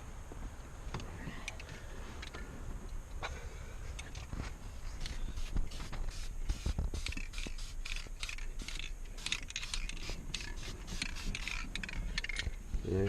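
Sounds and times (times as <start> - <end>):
mechanical clicking and scraping: 6.1 - 12.6.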